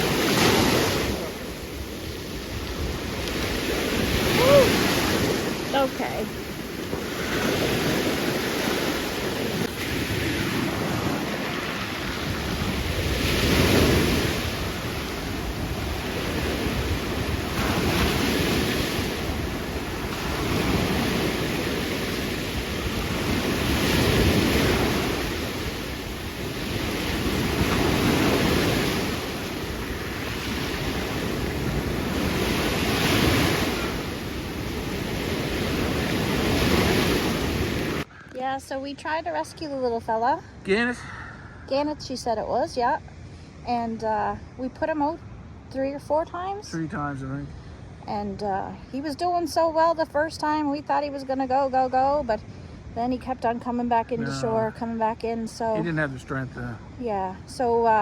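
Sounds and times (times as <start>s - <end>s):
ocean surf breaking: 0.0s - 38.1s, 53.0s - 58.0s.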